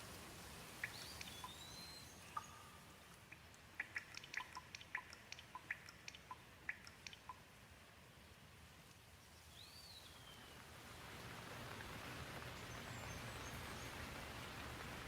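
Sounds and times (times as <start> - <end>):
raindrops ticking: 0.0 - 7.6
light rain hiss: 0.0 - 15.0.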